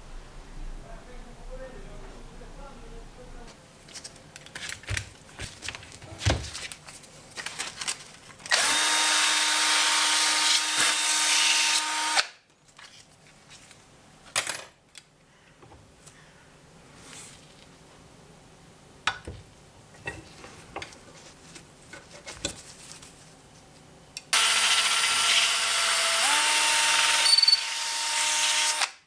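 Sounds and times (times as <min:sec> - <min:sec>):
electric power tool running: 0:08.5 - 0:12.3, 0:24.3 - 0:29.0.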